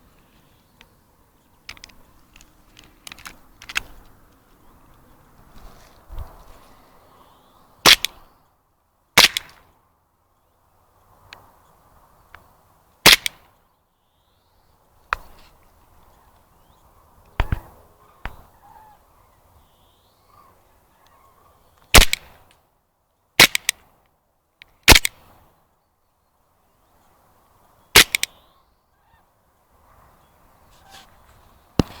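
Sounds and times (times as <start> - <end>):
airsoft pistol shots: 7.8 - 8.2, 9.2 - 9.6, 13.0 - 13.4, 21.9 - 22.3, 23.4 - 23.7, 24.9 - 25.2, 28.0 - 28.3.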